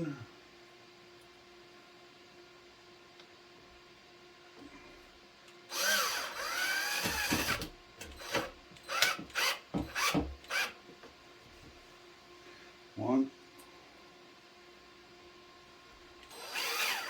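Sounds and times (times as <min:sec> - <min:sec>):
power drill driving a screw: 0:05.7 - 0:10.8, 0:16.2 - 0:17.0.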